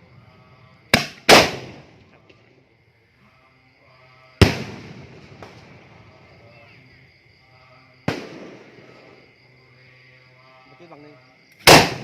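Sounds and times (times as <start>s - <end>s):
firework bangs: 0.8s - 2.1s, 4.4s - 6.5s, 8.0s - 9.3s, 11.6s - 12.0s.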